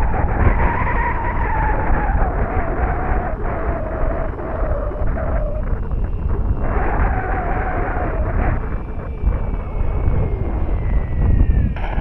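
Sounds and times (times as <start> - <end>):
model plane motor whine: 0.0 - 12.0
wind rumble on microphone: 0.0 - 12.0.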